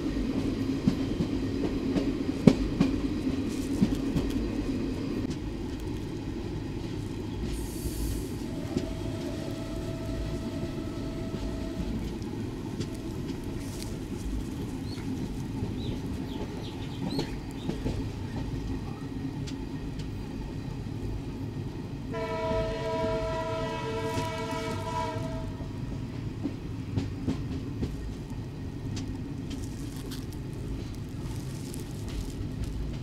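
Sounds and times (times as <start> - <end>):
train wheels rumbling on track: 0.0 - 33.0
train horn blast: 8.5 - 12.2, 22.1 - 25.8.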